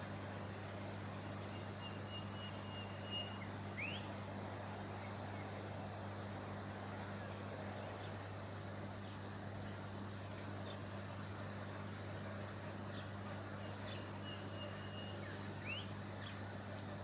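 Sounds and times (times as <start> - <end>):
low hum and hiss: 0.0 - 17.0
bird whistling: 1.5 - 4.1, 13.7 - 15.9.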